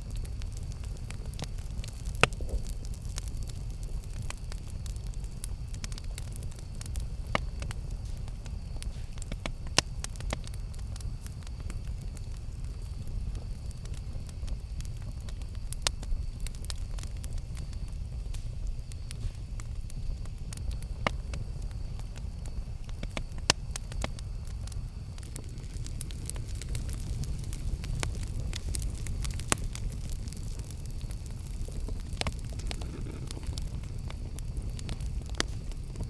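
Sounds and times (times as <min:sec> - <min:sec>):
campfire flames rumbling: 0:00.0 - 0:36.0
fire crackling and popping: 0:00.0 - 0:36.0.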